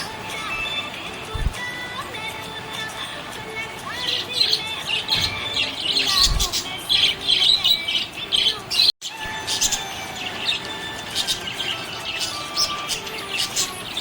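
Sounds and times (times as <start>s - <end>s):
budgerigar chirping and warbling: 3.9s - 14.0s.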